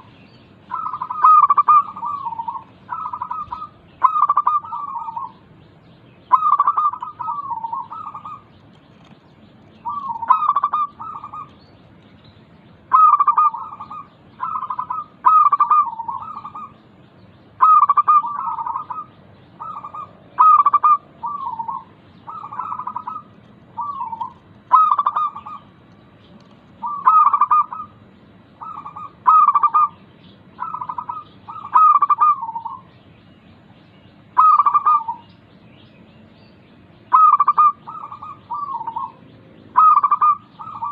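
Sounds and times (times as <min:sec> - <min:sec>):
dove cooing: 0:00.7 - 0:05.4, 0:06.3 - 0:09.1, 0:09.8 - 0:11.6, 0:12.9 - 0:16.8, 0:17.6 - 0:25.7, 0:26.8 - 0:28.0, 0:28.6 - 0:32.9, 0:34.4 - 0:35.3, 0:37.1 - 0:40.9.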